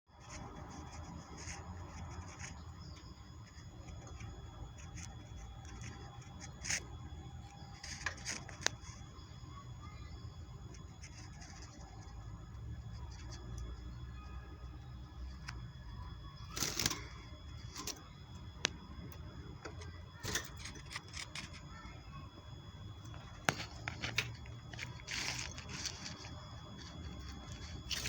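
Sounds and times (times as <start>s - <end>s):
steady low hum: 0.1s - 28.0s
bird scratching in cage: 0.2s - 7.0s, 16.5s - 18.2s, 19.6s - 21.9s, 23.1s - 28.0s.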